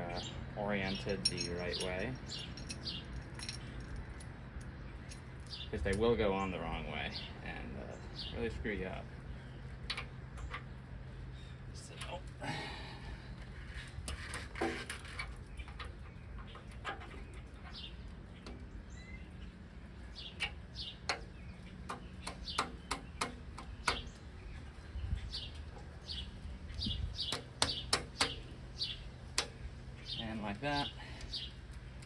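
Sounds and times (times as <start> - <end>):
birds chirping: 0.0 - 32.0
steady low hum: 0.0 - 32.0
metal parts clicking and tapping: 1.0 - 5.3.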